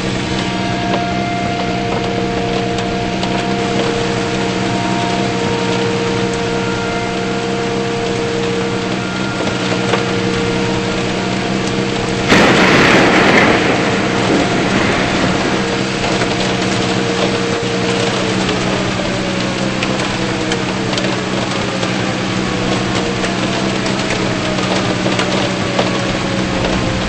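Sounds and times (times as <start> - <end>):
car engine and road noise: 0.0 - 27.0
rush of noise: 8.2 - 22.4.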